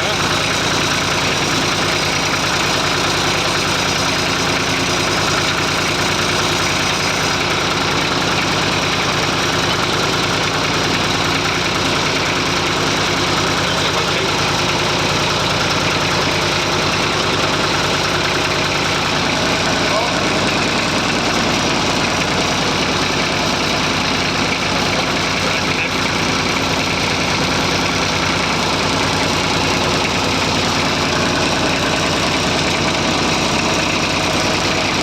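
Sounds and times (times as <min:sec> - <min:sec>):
tractor engine chugging: 0:00.0 - 0:35.0.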